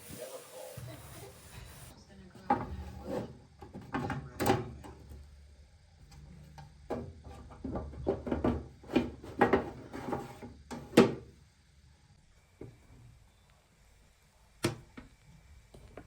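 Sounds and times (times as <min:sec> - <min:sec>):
household items knocking and clattering: 0:06.9 - 0:10.2.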